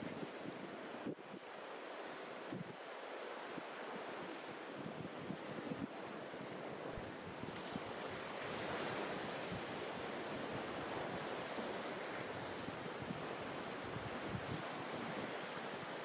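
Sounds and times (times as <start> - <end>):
sea waves washing onto beach: 0.0 - 16.0
wind buffeting the microphone: 12.2 - 15.4.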